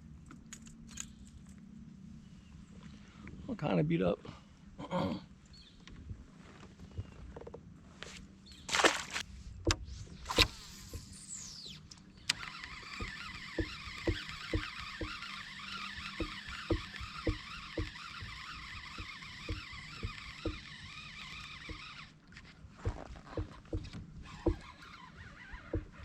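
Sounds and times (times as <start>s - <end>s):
fishing line whine: 8.6s - 22.5s
fishing reel clicks: 10.3s - 22.1s
fishing reel whirring and ticking: 10.3s - 22.2s.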